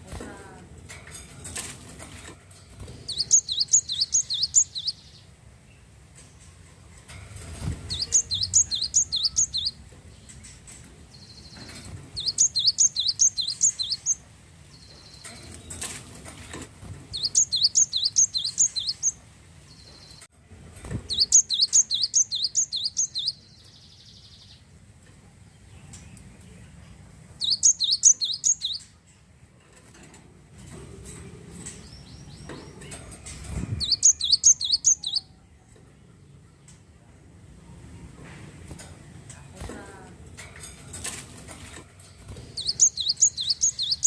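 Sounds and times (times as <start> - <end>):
bird singing high repeated chirps: 3.1 - 5.2, 7.9 - 9.8, 12.2 - 15.3, 17.1 - 20.2, 21.1 - 24.6, 27.4 - 28.9, 33.8 - 35.4, 42.6 - 44.0.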